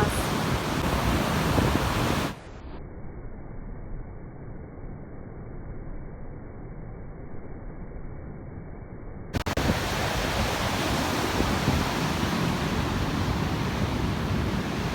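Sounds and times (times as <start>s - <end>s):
sea surf breaking: 0.0s - 2.4s, 9.4s - 14.9s
strong wind on microphone: 0.0s - 2.4s, 9.4s - 14.9s.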